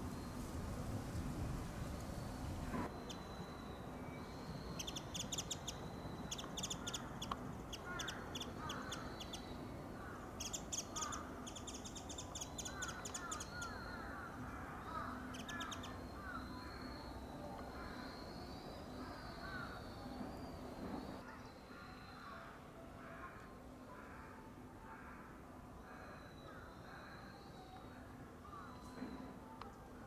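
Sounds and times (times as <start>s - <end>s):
rapid high ticking bird calls: 4.5s - 14.1s, 14.9s - 20.0s.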